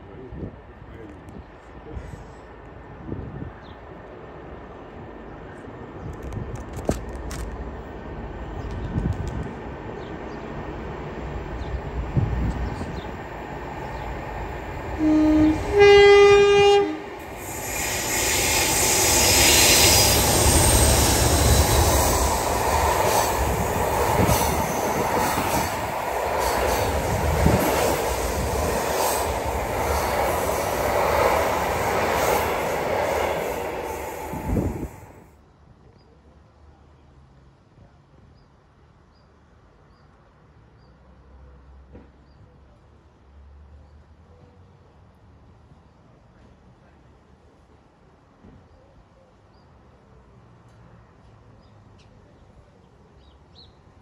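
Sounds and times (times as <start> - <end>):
two-tone train horn: 15.0 - 18.0.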